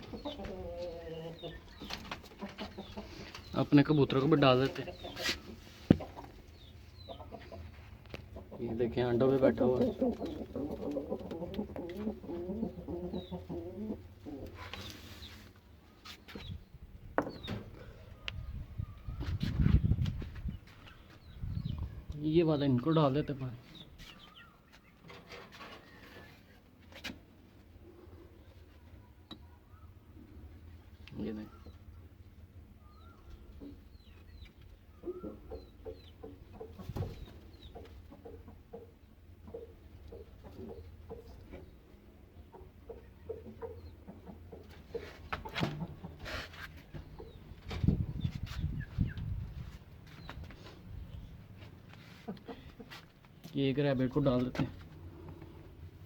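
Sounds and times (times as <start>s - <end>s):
pigeons cooing: 0.0s - 3.5s, 8.4s - 15.3s, 32.8s - 41.8s, 54.8s - 56.0s
hens clucking: 0.0s - 16.6s, 32.9s - 56.0s
small birds chirping: 0.0s - 26.6s, 27.6s - 56.0s.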